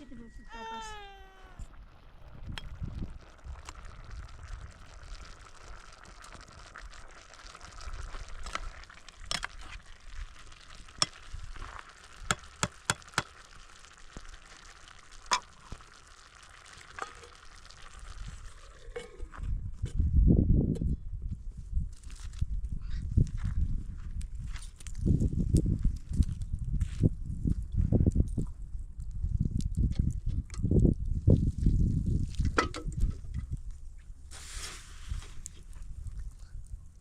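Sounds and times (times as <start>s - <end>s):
food sizzling in a pan: 0.5s - 18.9s.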